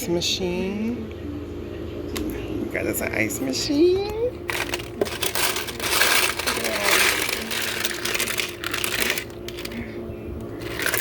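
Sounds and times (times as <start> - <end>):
faint steady hum: 0.0 - 11.0
ice cubes clattering: 4.5 - 9.8, 10.6 - 11.0.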